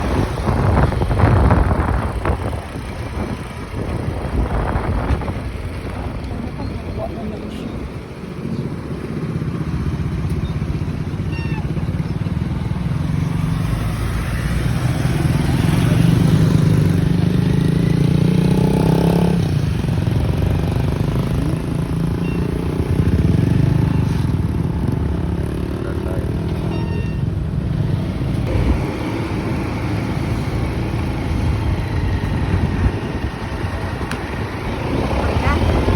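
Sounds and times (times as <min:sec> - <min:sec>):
motorcycle engine running: 0:00.0 - 0:35.9
traffic noise: 0:00.0 - 0:35.9
higher engine tone: 0:22.2 - 0:35.9.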